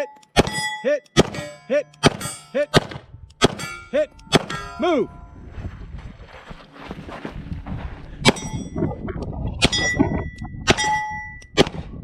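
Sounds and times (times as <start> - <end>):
metal plate ringing: 0.0 - 5.8, 8.2 - 8.9, 9.6 - 11.6
shotgun fire striking steel targets: 0.3 - 5.0, 8.2 - 8.6, 10.7 - 12.0.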